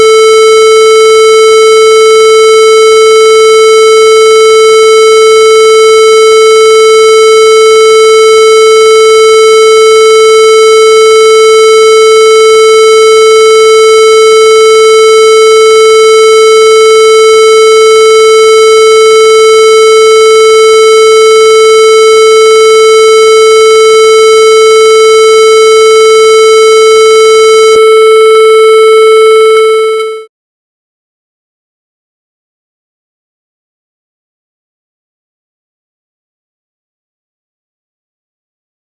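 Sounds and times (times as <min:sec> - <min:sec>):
electronic buzzing tone: 0:00.0 - 0:30.3.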